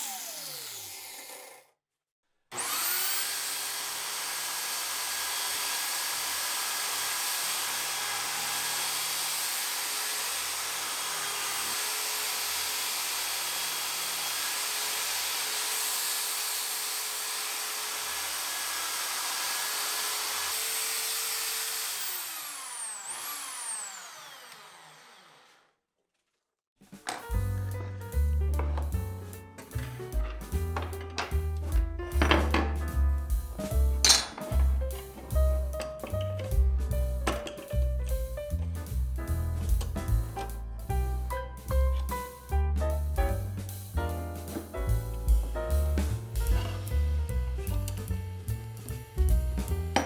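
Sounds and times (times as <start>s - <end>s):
electric power tool whining: 0.0s - 1.7s, 2.5s - 25.7s.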